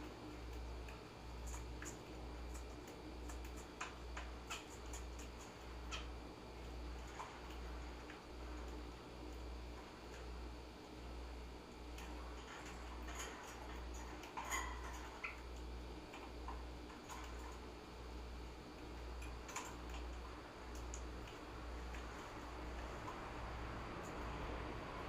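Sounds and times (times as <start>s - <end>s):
small clicks and taps: 0.0s - 6.1s, 18.8s - 23.2s
birds chirping faintly: 0.0s - 25.0s.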